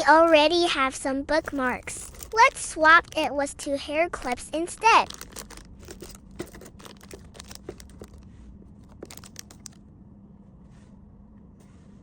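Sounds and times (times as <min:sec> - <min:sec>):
faint steady hum: 0:00.0 - 0:12.0
plastic packaging crinkling: 0:01.4 - 0:03.2, 0:04.6 - 0:09.8.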